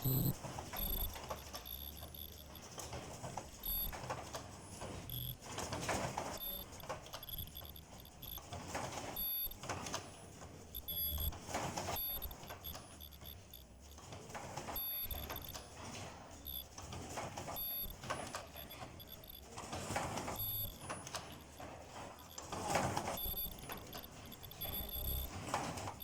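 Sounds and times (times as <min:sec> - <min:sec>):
high-pitched squeals or beeps: 0:00.0 - 0:02.7, 0:03.6 - 0:03.9, 0:05.1 - 0:05.4, 0:06.4 - 0:08.4, 0:09.2 - 0:09.6, 0:10.8 - 0:11.3, 0:11.9 - 0:14.0, 0:14.8 - 0:15.7, 0:16.4 - 0:16.7, 0:17.6 - 0:18.0, 0:18.6 - 0:19.5, 0:20.3 - 0:22.5, 0:23.1 - 0:25.3.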